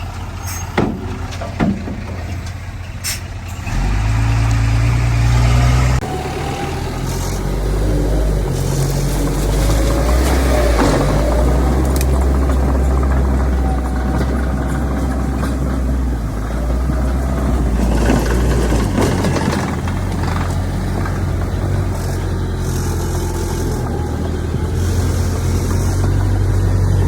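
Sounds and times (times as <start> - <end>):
diesel engine running: 0.0 - 27.0
metal clanks: 0.1 - 3.7.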